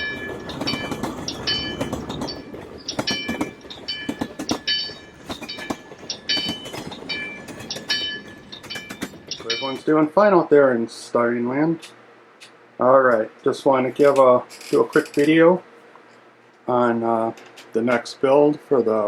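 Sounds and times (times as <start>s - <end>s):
crossing signal bell ringing: 0.0s - 10.1s
passing train rumble and clatter: 0.0s - 10.1s.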